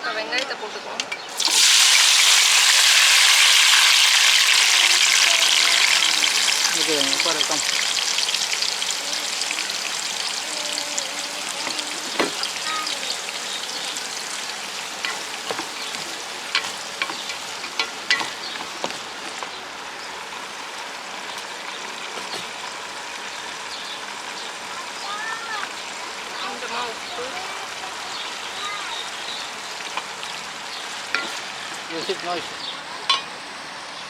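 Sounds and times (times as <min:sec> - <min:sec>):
onions sizzling in hot oil: 0:01.3 - 0:33.5
utensil clicking against pan: 0:15.0 - 0:19.4.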